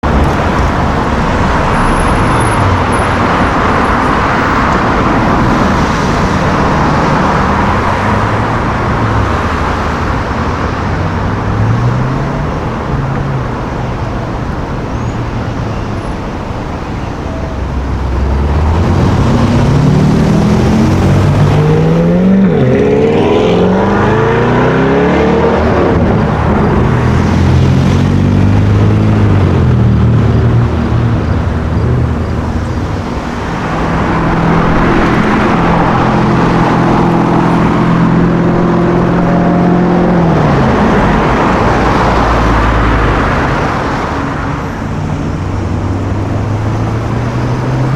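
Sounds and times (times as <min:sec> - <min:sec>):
sports car engines in traffic: 0:00.0 - 0:47.9
engine revving hard: 0:18.1 - 0:47.9.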